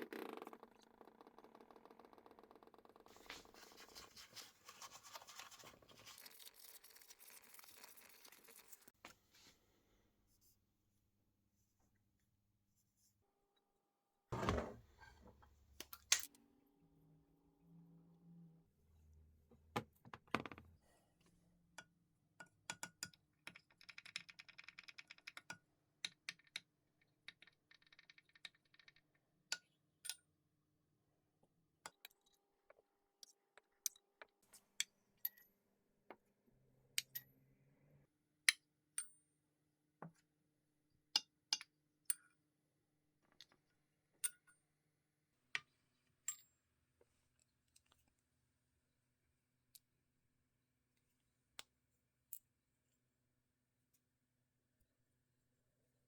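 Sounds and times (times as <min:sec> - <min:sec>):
thump: 0:14.4 - 0:14.8.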